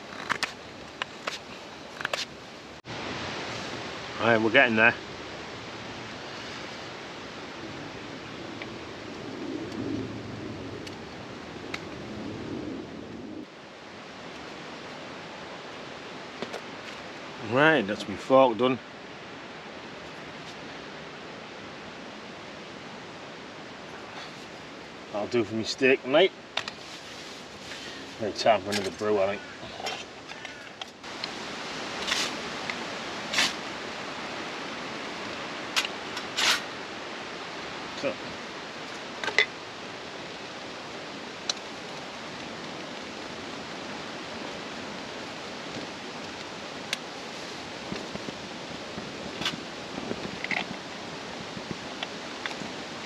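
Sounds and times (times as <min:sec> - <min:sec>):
steady outdoor hiss: 0:00.0 - 0:53.0.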